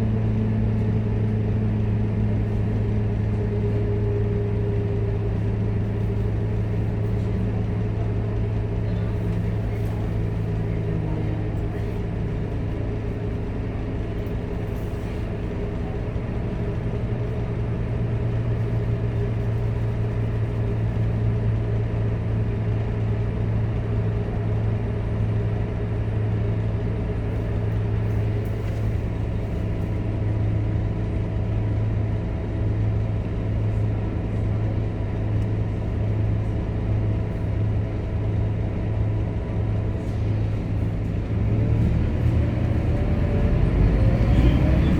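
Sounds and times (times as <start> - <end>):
bus engine drone: 0.0 - 44.9
road noise: 0.3 - 21.2, 38.2 - 44.9.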